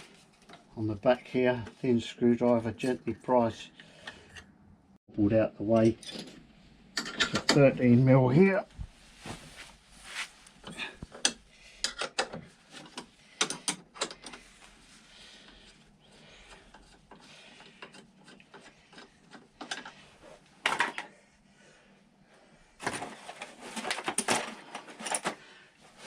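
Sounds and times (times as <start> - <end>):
metal clicks and knocks: 11.2 - 14.4.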